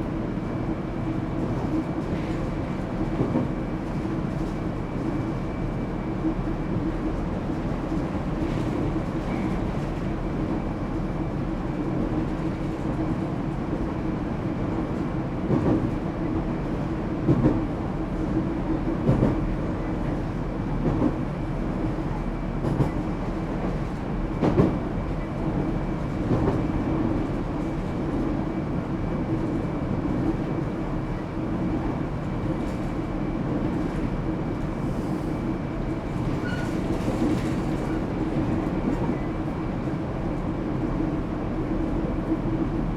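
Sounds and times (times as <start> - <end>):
train rolling noise: 0.0 - 42.9.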